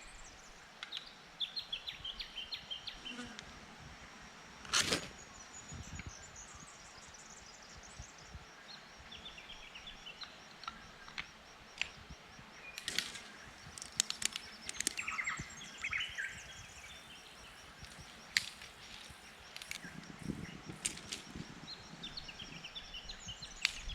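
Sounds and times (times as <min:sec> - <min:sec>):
birds chirping: 0:05.2 - 0:23.9
sharp clicks: 0:12.8 - 0:16.3, 0:17.7 - 0:21.4.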